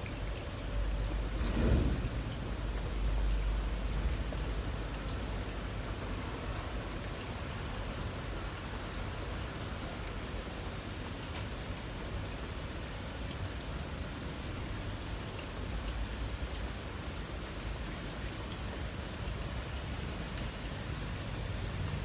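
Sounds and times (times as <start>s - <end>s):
faint drip ticks: 0.0s - 22.0s
light rain hissing: 0.0s - 22.0s.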